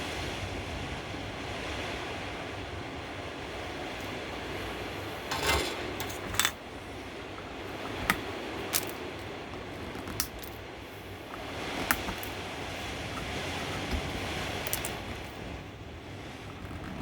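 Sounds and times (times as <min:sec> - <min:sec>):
clicks and clinks of tools: 0:05.3 - 0:06.6.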